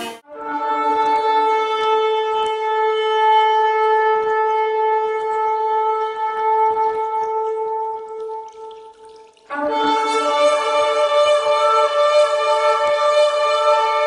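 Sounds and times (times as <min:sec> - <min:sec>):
shofar blast: 0:09.5 - 0:14.0.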